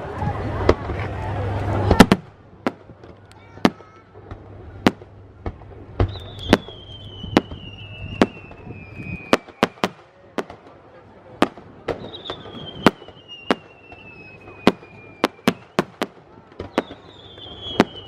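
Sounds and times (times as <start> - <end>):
descending firework whistles: 5.9 - 10.0, 11.9 - 18.0.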